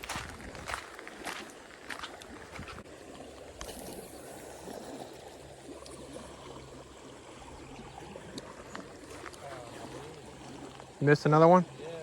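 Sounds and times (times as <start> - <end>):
river water trickling: 0.0 - 12.0.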